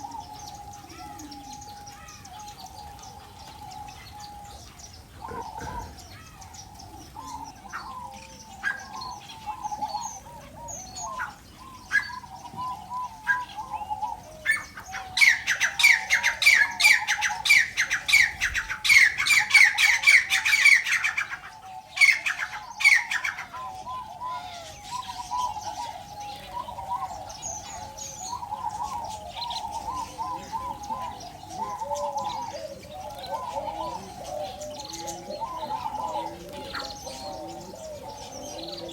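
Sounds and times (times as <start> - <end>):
birds chattering warble: 0.0 - 38.9.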